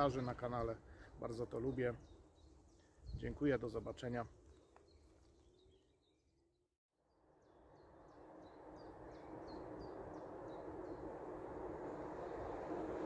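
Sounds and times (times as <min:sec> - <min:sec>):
bird chirping: 0:00.0 - 0:06.5, 0:07.4 - 0:12.8
electric train approaching: 0:07.3 - 0:13.0.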